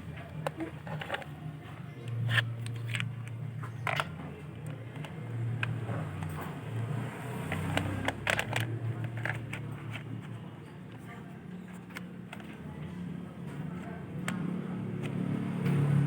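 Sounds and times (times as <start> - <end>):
probe clicks and scrapes: 0.0 - 12.8.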